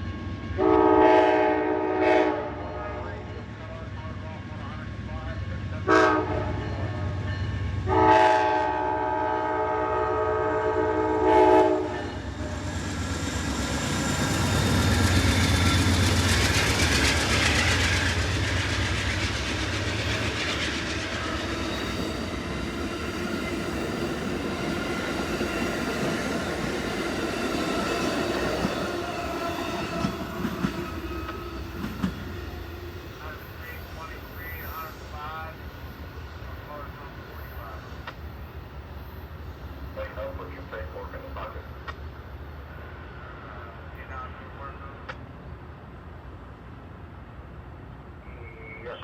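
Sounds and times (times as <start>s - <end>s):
train rumble passing: 0.0s - 49.0s
train horn blast: 0.6s - 3.3s, 5.8s - 7.2s, 7.8s - 12.2s.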